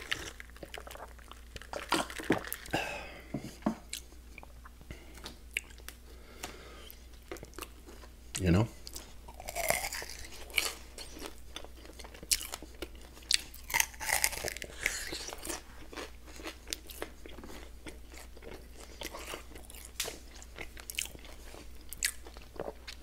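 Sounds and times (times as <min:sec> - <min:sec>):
person chewing with wet smacks: 0:00.0 - 0:02.7, 0:03.8 - 0:23.0
crunching bites: 0:13.3 - 0:17.6.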